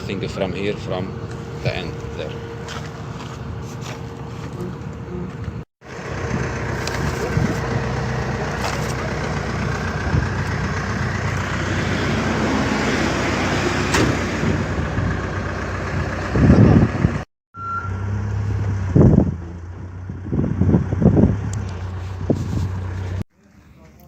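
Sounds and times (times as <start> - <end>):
heavy machine engine humming: 0.0 - 17.2.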